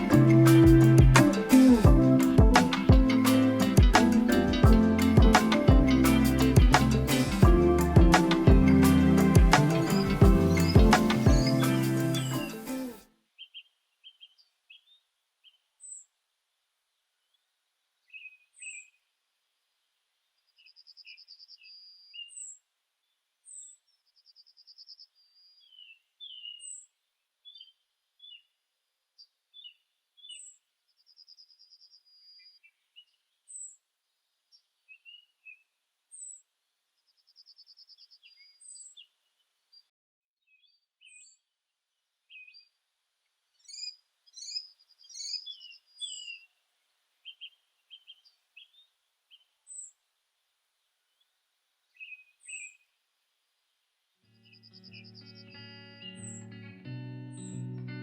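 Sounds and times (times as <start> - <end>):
small songbirds singing: 0.0 - 12.6, 13.4 - 16.1, 18.0 - 19.0, 20.4 - 28.6, 29.2 - 41.5, 42.3 - 42.8, 43.5 - 50.0, 51.9 - 53.0, 54.3 - 56.6, 57.3 - 57.6.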